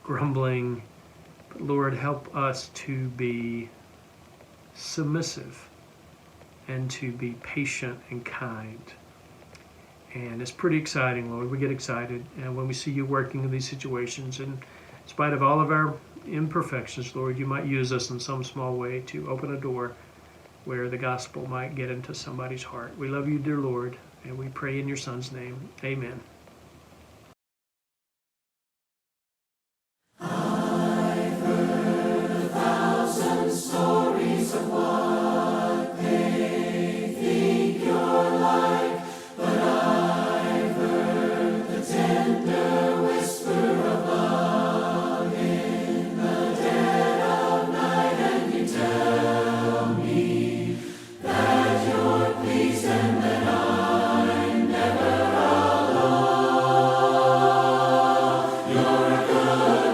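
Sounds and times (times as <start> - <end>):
choir singing a cappella hymn: 30.2 - 59.9.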